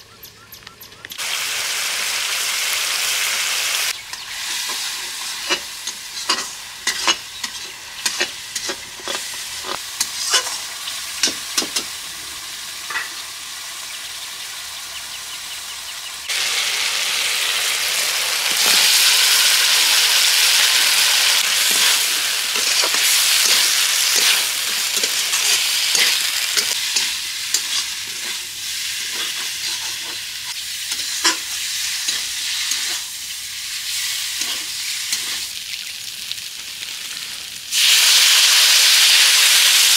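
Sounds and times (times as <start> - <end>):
curry sizzling in a pan: 1.2 - 39.9
metal spatula scraping a pan: 4.5 - 12.0, 21.5 - 33.1, 33.9 - 35.5.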